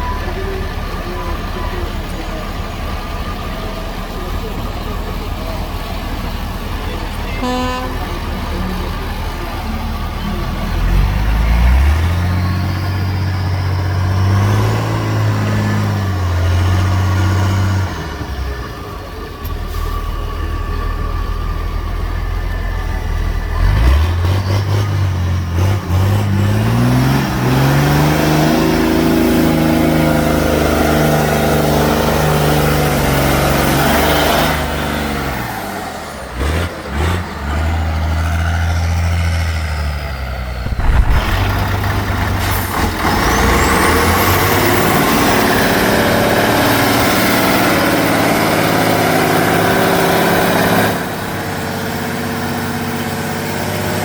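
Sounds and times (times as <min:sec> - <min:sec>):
heavy truck engine revving: 0:00.0 - 0:54.0.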